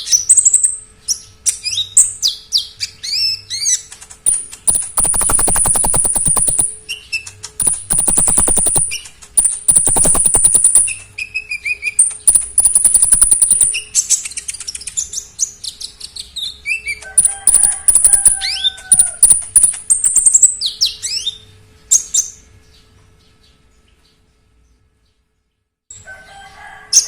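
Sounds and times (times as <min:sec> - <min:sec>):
songbird singing: 0:00.3 - 0:11.1, 0:11.8 - 0:15.2.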